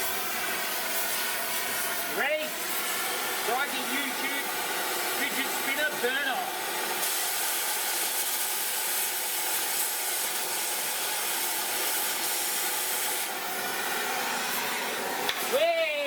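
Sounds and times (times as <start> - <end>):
cutting torch hissing: 0.0 - 16.0.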